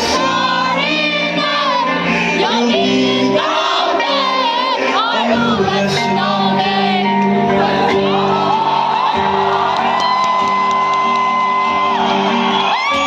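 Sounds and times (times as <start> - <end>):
person singing ornamented melody: 0.0 - 8.7
sustained instrumental accompaniment: 0.0 - 13.0.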